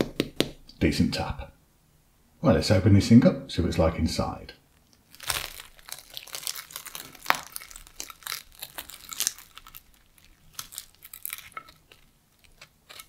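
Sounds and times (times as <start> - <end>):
fork pulling pastry apart: 6.8 - 13.0
knife cutting crunchy pastry: 10.5 - 13.0.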